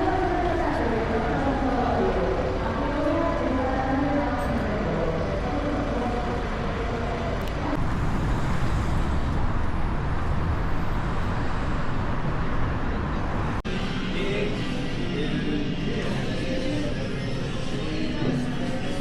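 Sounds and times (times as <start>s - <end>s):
traffic rumble: 0.0s - 14.1s.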